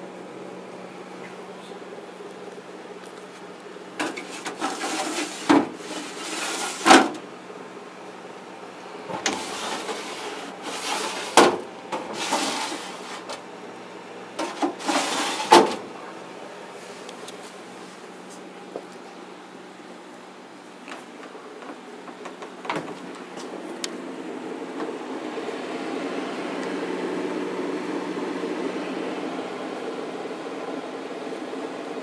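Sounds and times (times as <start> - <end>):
faint steady hum: 0.0 - 32.0
fridge door rubbing and sliding: 4.0 - 7.3, 9.1 - 13.4, 14.3 - 15.9.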